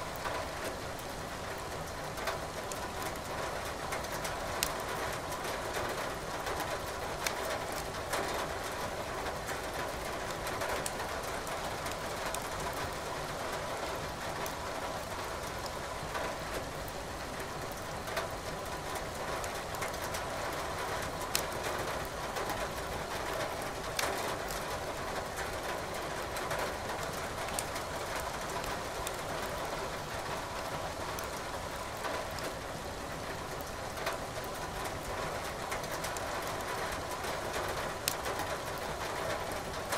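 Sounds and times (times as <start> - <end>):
rain hiss: 0.0 - 39.9
firewood crackling: 21.3 - 21.5, 27.4 - 27.8.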